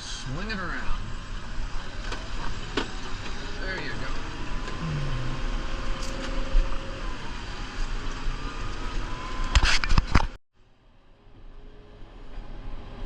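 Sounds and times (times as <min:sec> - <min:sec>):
diesel tractor running: 0:00.0 - 0:09.5.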